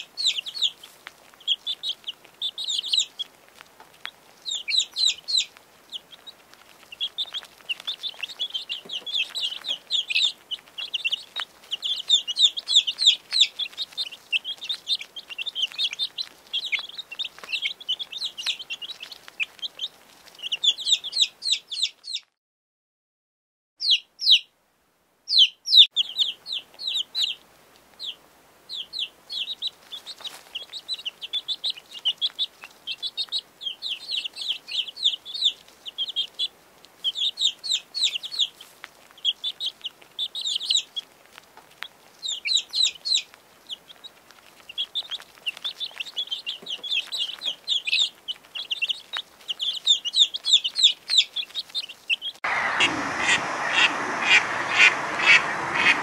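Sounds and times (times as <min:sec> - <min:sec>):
chicks peeping: 0:00.0 - 0:22.4, 0:23.8 - 0:24.5, 0:25.3 - 0:56.0
ducks quacking: 0:52.4 - 0:56.0.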